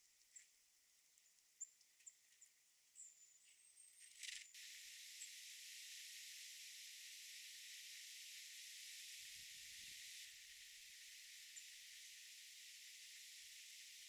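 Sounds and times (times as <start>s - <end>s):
faint steady hiss: 4.0s - 14.0s.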